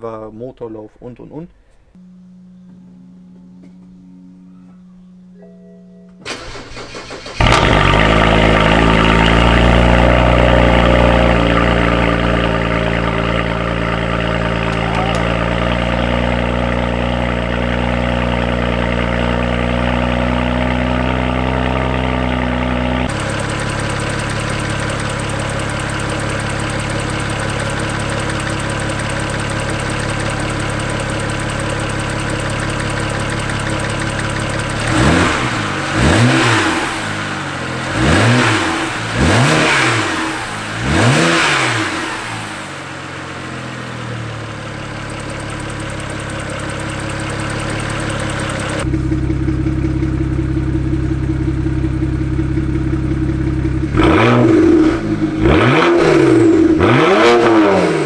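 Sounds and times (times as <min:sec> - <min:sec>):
car engine idling: 0:02.0 - 0:58.0
engine revving: 0:06.2 - 0:44.4, 0:46.3 - 0:49.7, 0:53.3 - 0:58.0.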